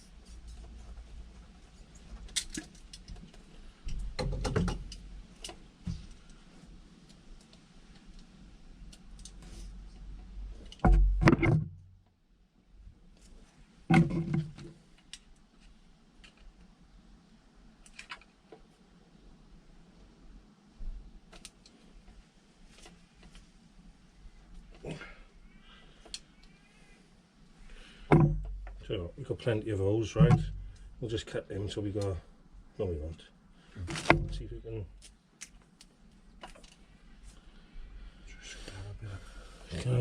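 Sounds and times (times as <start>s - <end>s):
light clicks and metallic rattles: 0.2s - 6.4s.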